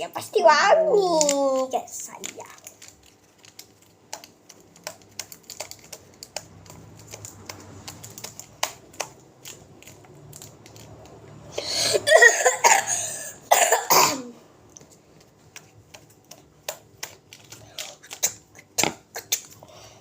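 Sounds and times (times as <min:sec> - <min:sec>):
sticky slime clicks: 0:01.2 - 0:11.0.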